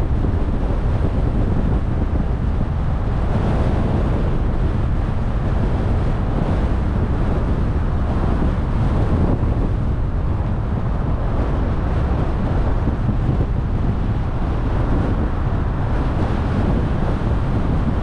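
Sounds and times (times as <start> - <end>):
car road and wind rumble: 0.0 - 18.0
wind buffeting microphone: 0.0 - 18.0.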